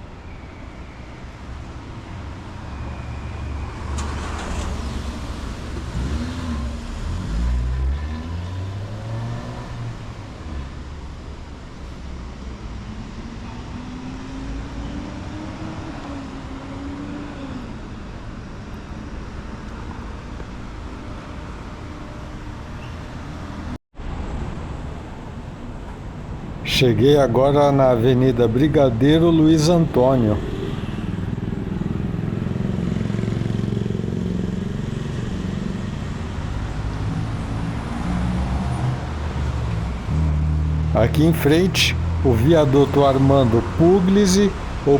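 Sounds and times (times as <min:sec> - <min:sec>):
traffic rumble and hiss: 0:00.0 - 0:44.9
car engines passing: 0:01.1 - 0:44.9
traffic hiss: 0:26.4 - 0:30.9, 0:41.0 - 0:44.9
vehicle engine rising in pitch: 0:26.4 - 0:44.9.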